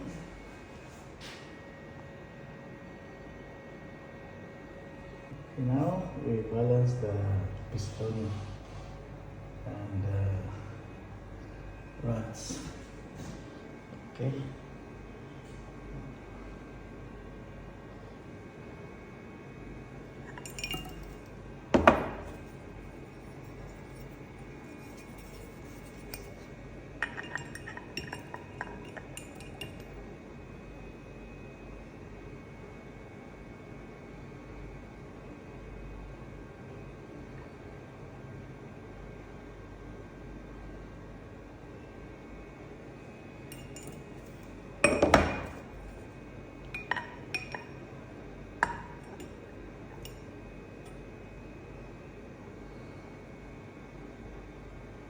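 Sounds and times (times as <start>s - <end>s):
low shop hum: 0.0s - 54.1s
light metallic clinks and taps: 20.3s - 22.5s, 27.0s - 29.9s, 43.5s - 45.6s, 46.7s - 47.7s, 48.6s - 49.3s.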